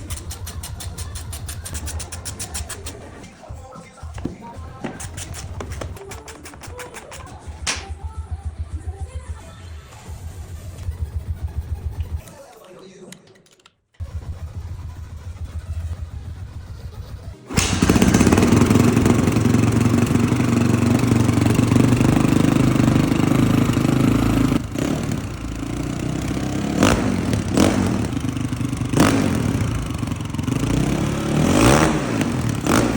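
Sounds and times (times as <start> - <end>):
dirt bike engine running: 4.1 - 9.5, 10.4 - 12.2, 14.0 - 32.9
engine throttle blips: 14.0 - 32.9.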